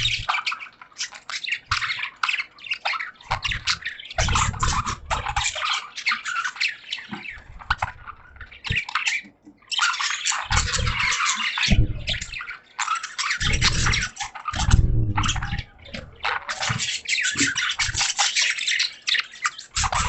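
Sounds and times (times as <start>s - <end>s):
budgerigars chirping and squawking: 0.0s - 20.0s
low rumble: 11.7s - 12.4s, 13.5s - 16.0s.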